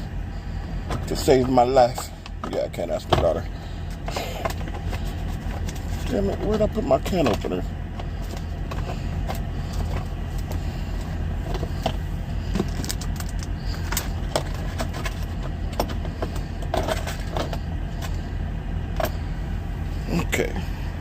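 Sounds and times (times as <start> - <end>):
low hum in truck cab: 0.0 - 21.0
objects clattering while rummaging: 4.0 - 6.2, 11.4 - 18.2.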